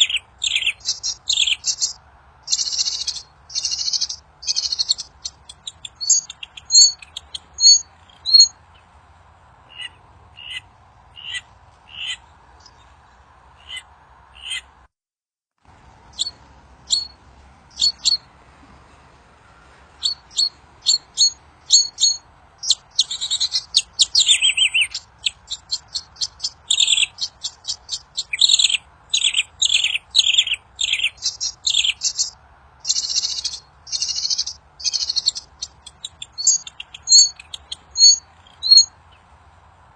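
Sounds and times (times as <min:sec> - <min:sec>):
songbird chirping: 0:00.0 - 0:14.8, 0:15.7 - 0:39.9
faint steady hiss: 0:15.6 - 0:39.9.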